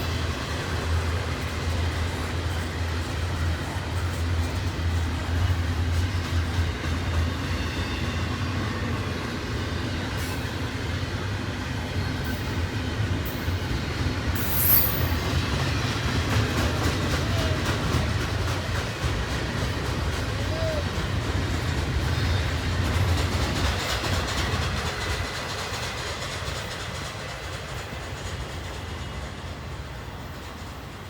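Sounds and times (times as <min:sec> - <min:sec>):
freight train wheels rumbling: 0:00.0 - 0:31.0
wheel squeal: 0:14.4 - 0:15.3.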